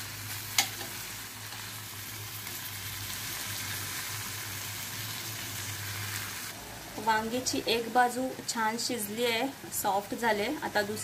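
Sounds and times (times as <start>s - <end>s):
food sizzling in a metal pot: 0.0s - 11.0s
metal spatula turning food: 0.4s - 1.8s.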